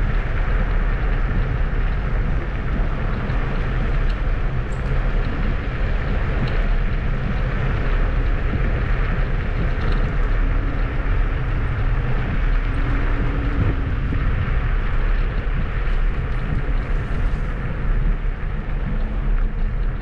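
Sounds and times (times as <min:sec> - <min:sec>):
scooter tyre rumble: 0:00.0 - 0:20.0
wind noise on microphone: 0:00.0 - 0:20.0.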